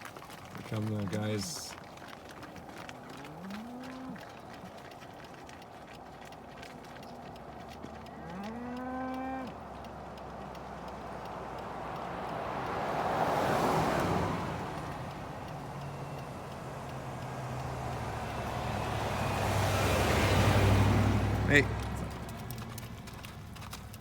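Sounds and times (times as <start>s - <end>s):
vehicle passing by: 0.5s - 24.0s
cow mooing: 2.9s - 4.4s, 7.9s - 9.6s.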